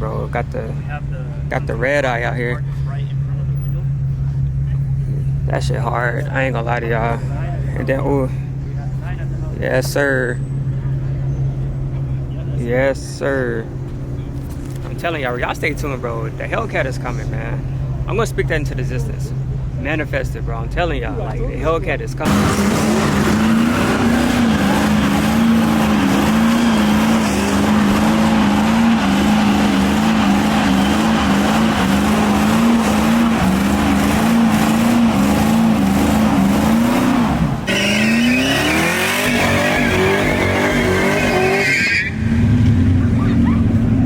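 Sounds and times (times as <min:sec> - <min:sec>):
tire squeal: 0:10.0 - 0:12.4, 0:22.3 - 0:44.0
car engine revving high: 0:22.2 - 0:44.0.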